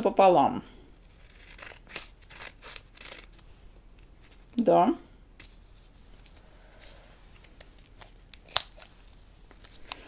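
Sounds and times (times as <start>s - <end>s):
scissors snipping tape: 7.5s - 8.9s.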